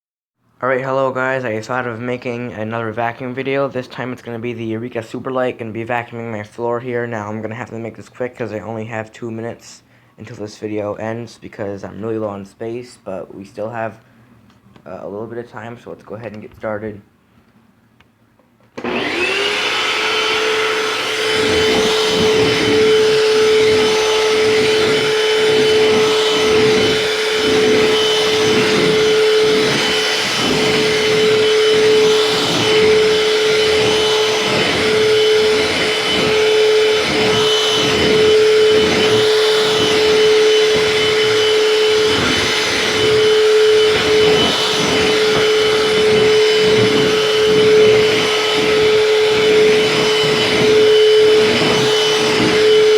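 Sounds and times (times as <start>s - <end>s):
vacuum cleaner running: 18.6s - 52.9s.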